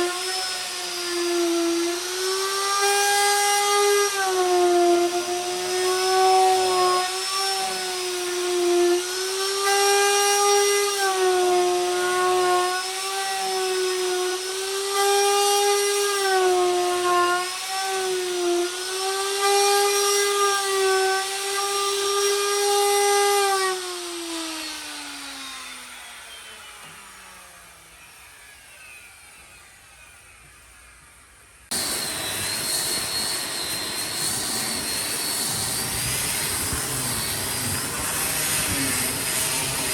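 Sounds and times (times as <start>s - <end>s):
higher-pitched power tool: 0.0s - 39.9s
power tool motor running: 31.7s - 39.9s.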